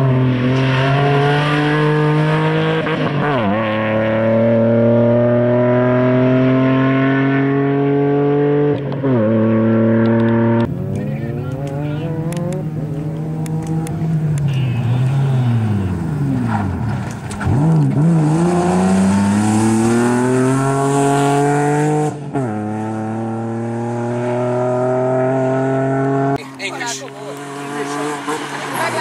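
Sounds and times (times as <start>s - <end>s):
car engine revving hard: 0.0s - 10.7s, 17.4s - 29.0s.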